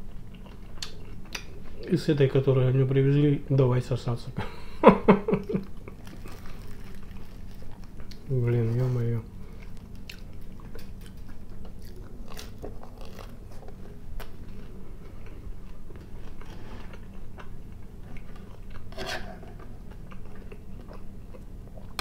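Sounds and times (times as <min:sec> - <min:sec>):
chewing bread and fish: 0:00.0 - 0:02.0, 0:05.3 - 0:22.0.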